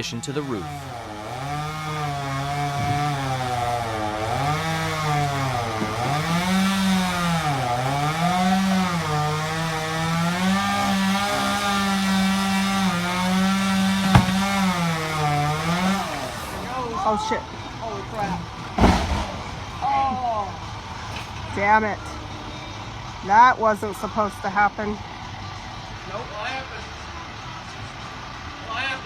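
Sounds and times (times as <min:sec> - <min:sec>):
chainsaw cutting wood: 0:00.2 - 0:16.8.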